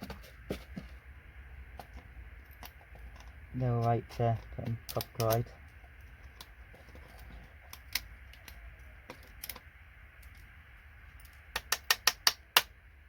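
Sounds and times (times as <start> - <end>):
connector pins clicking out: 4.5 - 5.5.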